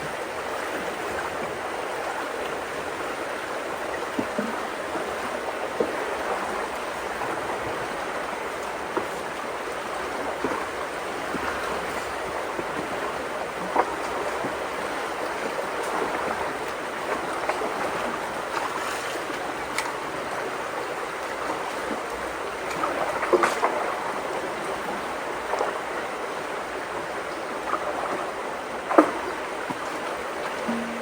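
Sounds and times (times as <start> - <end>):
creek water rushing through culvert: 0.0 - 31.0
splashes or knocks: 30.6 - 31.0.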